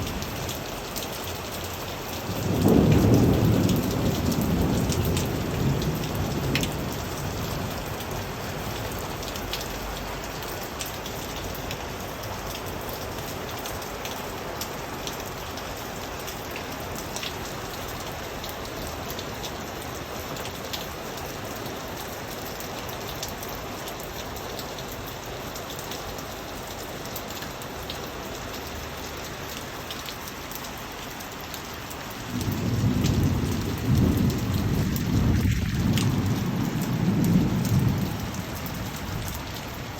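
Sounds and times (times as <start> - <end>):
raindrops ticking: 0.0 - 39.9
steady rain falling: 0.0 - 39.9
thunder rumbling: 2.2 - 9.6, 32.3 - 39.9.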